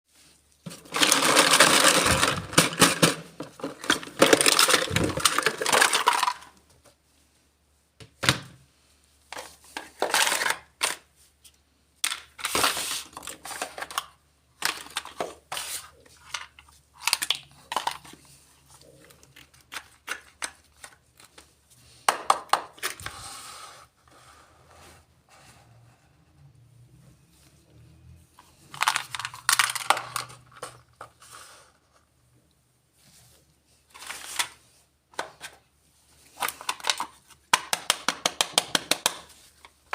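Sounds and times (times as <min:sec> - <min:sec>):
plastic toy pieces rustling: 0:00.6 - 0:06.7, 0:09.3 - 0:11.2, 0:12.0 - 0:23.2, 0:28.4 - 0:31.7, 0:33.7 - 0:39.9.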